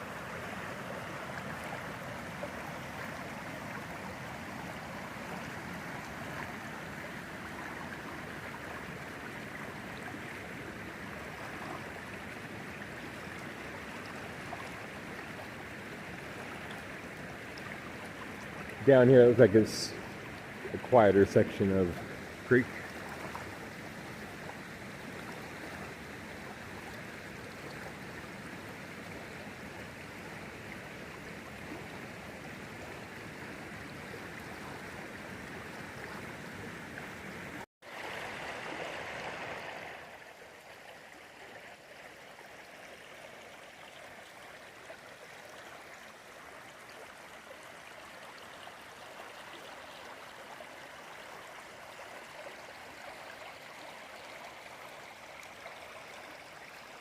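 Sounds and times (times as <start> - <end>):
creek water rushing: 0.0 - 57.0.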